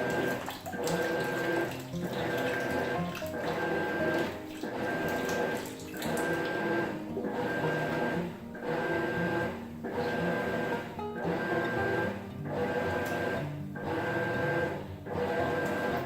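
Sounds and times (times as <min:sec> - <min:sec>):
water sloshing: 0:00.0 - 0:10.6
washing machine motor humming: 0:00.0 - 0:16.0.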